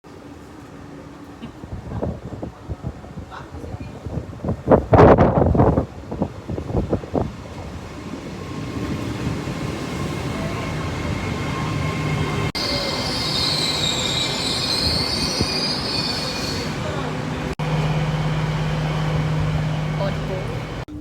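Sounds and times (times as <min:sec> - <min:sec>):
train running: 0:00.1 - 0:21.0
wheels squealing on rail: 0:08.6 - 0:17.6.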